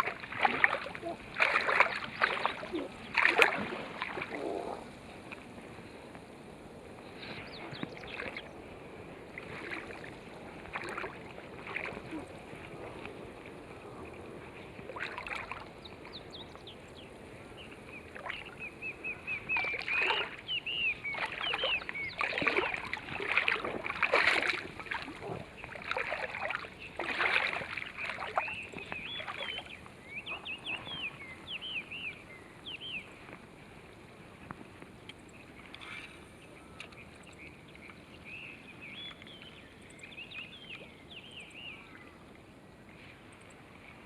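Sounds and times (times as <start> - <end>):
water sloshing and splashing: 0.0 - 5.5, 7.3 - 8.6, 9.2 - 13.6, 14.6 - 16.5, 18.0 - 18.6, 19.4 - 31.0
small birds chirping: 0.8 - 3.4, 14.5 - 23.6, 25.2 - 33.3, 35.0 - 42.2.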